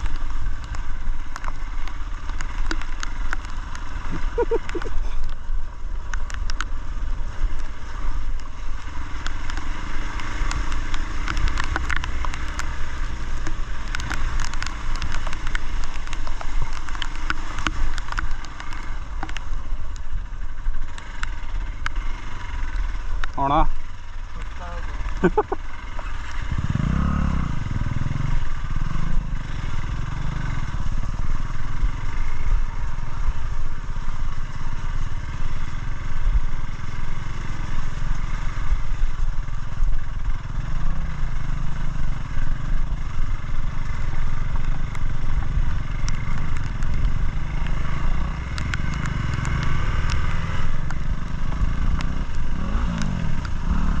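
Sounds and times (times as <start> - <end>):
motorcycle engine: 0.0 - 54.0
wind and ground noise: 0.0 - 54.0
sharp clicks: 8.3 - 20.2, 43.8 - 54.0.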